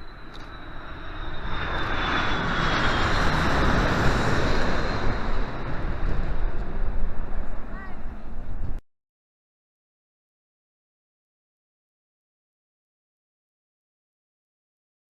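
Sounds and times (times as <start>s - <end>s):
jet engines roaring: 0.0s - 8.8s.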